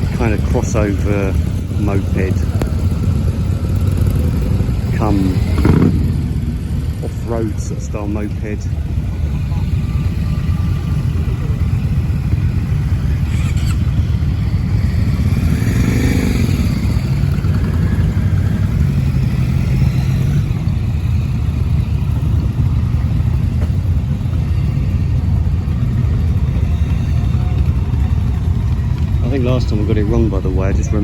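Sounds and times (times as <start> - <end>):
motorcycle passing: 0.0 - 31.0
steady low rumble: 0.0 - 31.0.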